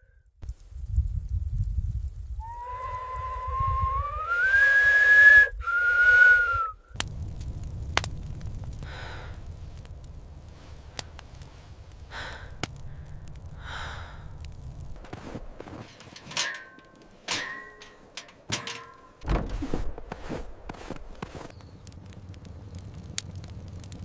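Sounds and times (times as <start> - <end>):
low rumble: 6.9 - 24.0
soft puffs of breath: 10.6 - 14.4.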